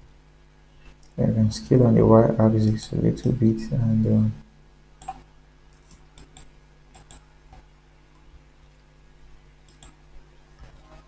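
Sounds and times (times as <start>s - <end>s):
low electrical hum: 0.0s - 11.0s
mouse and keyboard clicks: 5.0s - 7.6s.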